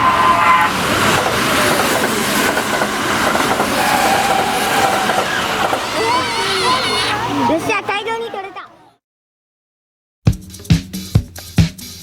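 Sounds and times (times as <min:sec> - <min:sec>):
train wheels rumbling on rails: 0:00.0 - 0:08.3.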